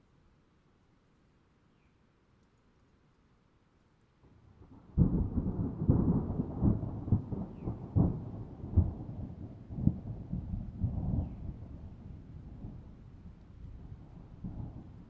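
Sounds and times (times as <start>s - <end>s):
thunder rumbling and cracking: 4.8s - 13.0s.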